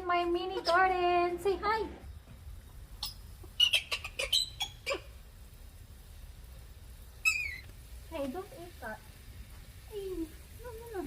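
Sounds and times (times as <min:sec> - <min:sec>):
parrot sharp chirps: 0:03.0 - 0:05.1, 0:07.2 - 0:07.7.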